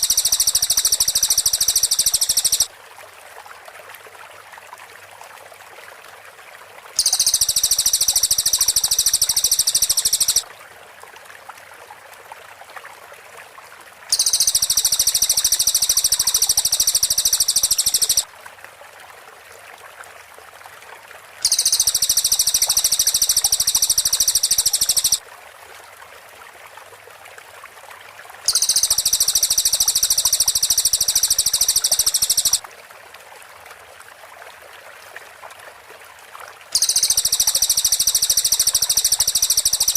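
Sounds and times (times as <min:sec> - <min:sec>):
bird high-pitched rapid trill: 0:00.0 - 0:02.7, 0:07.0 - 0:10.4, 0:14.1 - 0:18.2, 0:21.4 - 0:25.2, 0:28.5 - 0:32.6, 0:36.8 - 0:39.9
faint steady hiss: 0:00.0 - 0:04.6, 0:06.9 - 0:10.5, 0:13.3 - 0:18.5, 0:20.2 - 0:26.8, 0:27.5 - 0:33.9, 0:36.4 - 0:39.9.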